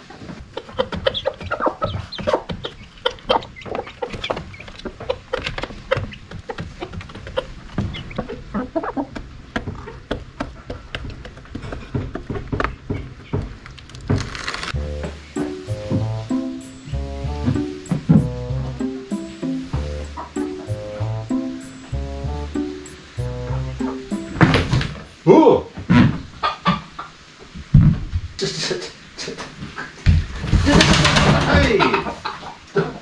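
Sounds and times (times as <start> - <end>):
chickens calling: 0.1 - 13.5, 14.8 - 24.9.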